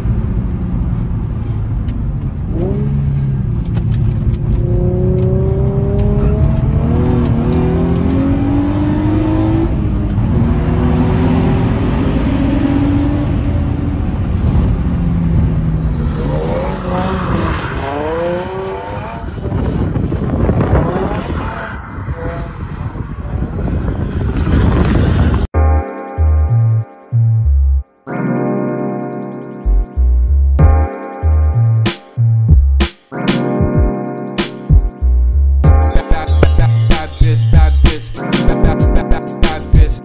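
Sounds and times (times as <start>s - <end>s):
car engine accelerating: 0.0s - 25.5s
car engine revving while drifting: 4.6s - 14.8s, 15.4s - 25.2s.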